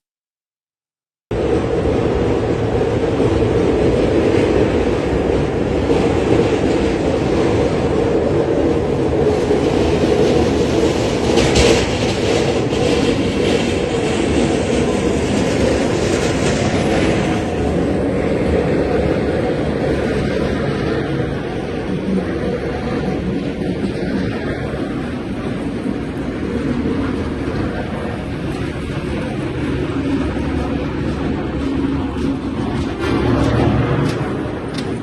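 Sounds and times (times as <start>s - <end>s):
loud mechanical rumble: 1.3s - 35.0s
sharp clacks: 30.2s - 35.0s.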